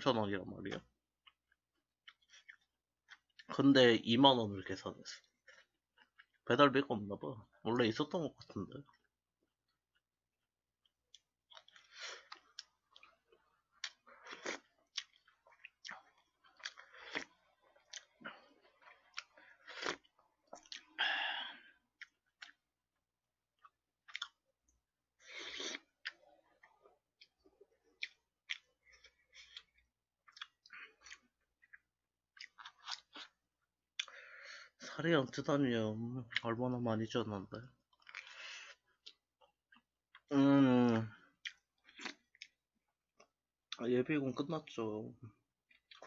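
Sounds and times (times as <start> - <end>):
person chewing food: 1.2 - 3.5, 8.8 - 34.7, 37.8 - 40.3, 41.3 - 43.8, 45.6 - 46.0.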